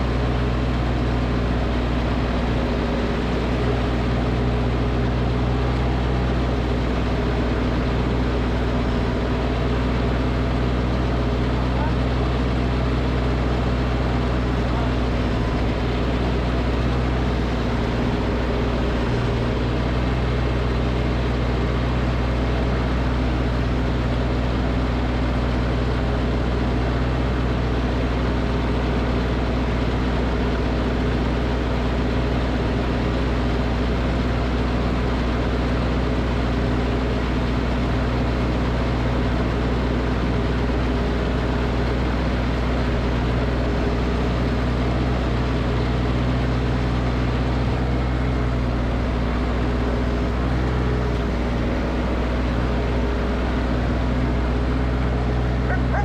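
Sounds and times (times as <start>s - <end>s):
snowblower engine running: 0.0s - 56.0s.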